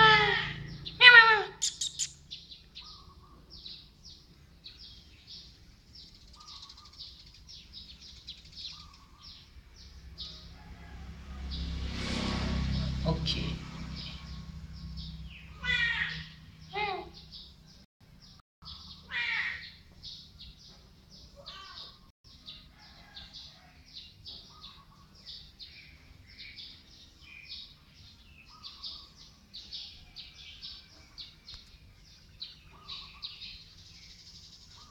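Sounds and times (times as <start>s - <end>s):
wavering bird call: 0.0s - 3.4s
small birds chirping: 0.0s - 11.8s, 12.8s - 34.9s.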